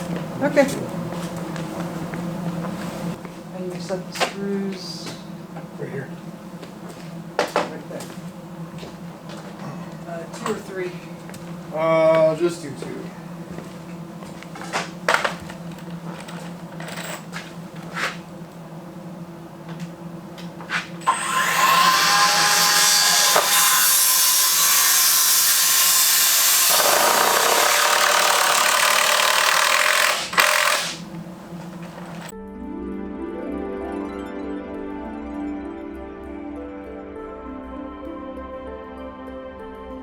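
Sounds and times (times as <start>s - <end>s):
power tool running: 20.6s - 32.3s.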